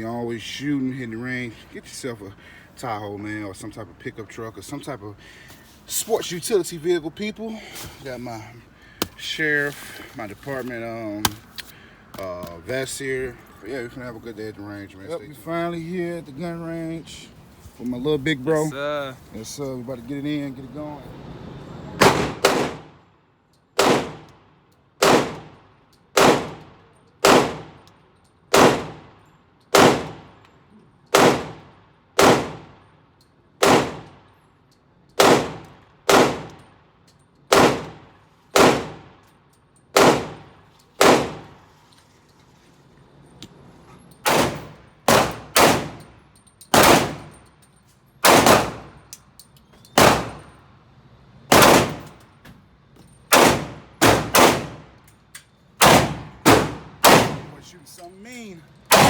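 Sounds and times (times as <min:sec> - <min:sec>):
gunshots with ringing tail: 0:22.0 - 0:22.9, 0:23.8 - 0:24.3, 0:25.0 - 0:25.5, 0:26.2 - 0:26.6, 0:27.2 - 0:27.8, 0:28.6 - 0:29.2, 0:29.8 - 0:30.3, 0:31.2 - 0:32.8, 0:33.6 - 0:34.2, 0:35.2 - 0:36.6, 0:38.6 - 0:39.1, 0:40.0 - 0:41.6, 0:44.3 - 0:46.0, 0:46.8 - 0:47.3, 0:48.2 - 0:48.9, 0:53.3 - 0:54.9, 0:55.8 - 0:57.6.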